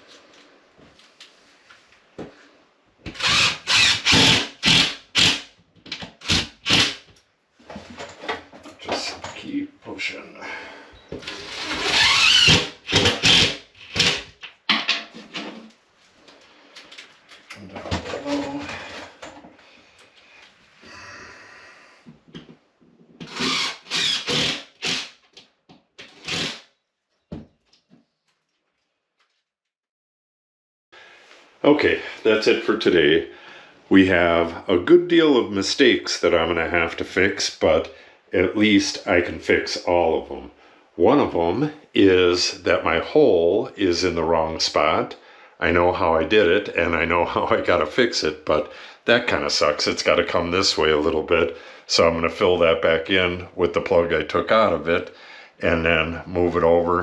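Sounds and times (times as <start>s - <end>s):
power drill driving screws: 3.2s - 5.4s, 6.2s - 7.0s, 11.2s - 14.2s, 23.2s - 25.2s, 26.0s - 26.7s
scraping or rustling noises: 15.0s - 20.7s.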